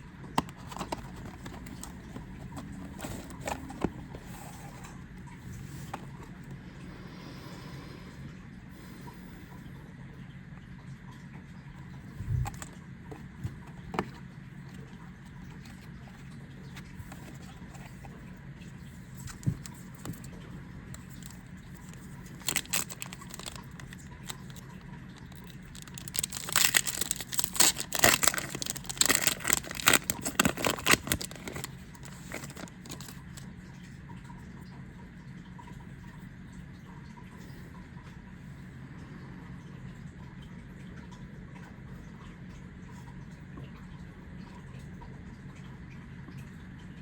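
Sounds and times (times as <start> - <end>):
foil pack crinkling and tearing: 0.4 - 3.9, 20.9 - 33.4.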